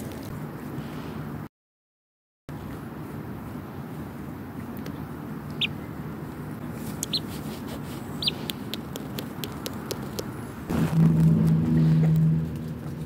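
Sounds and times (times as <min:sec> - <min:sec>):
young bird chirping: 0:04.9 - 0:06.0, 0:06.8 - 0:07.4, 0:08.0 - 0:08.9
rustle against cloth: 0:06.8 - 0:08.5.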